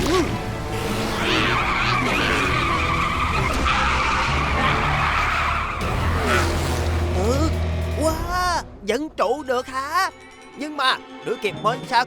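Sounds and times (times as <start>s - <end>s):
cartoon tyre screech: 0.9s - 6.7s.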